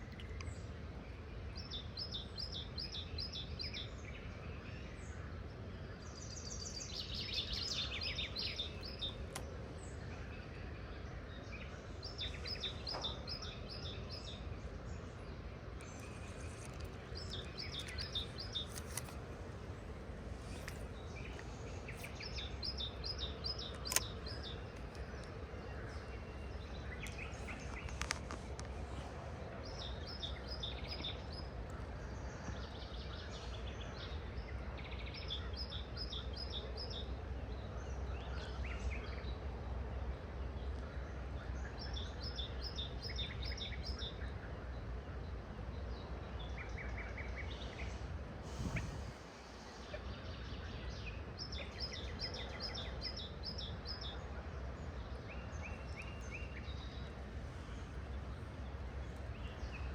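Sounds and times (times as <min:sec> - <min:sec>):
songbirds trilling: 0:00.0 - 0:59.9
sharp click: 0:23.6 - 0:24.5.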